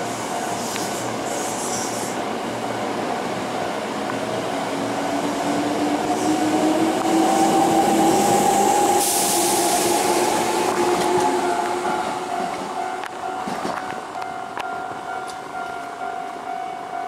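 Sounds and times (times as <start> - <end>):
rumble of train cars: 0.0 - 17.0
train traction motors whining: 4.1 - 14.2.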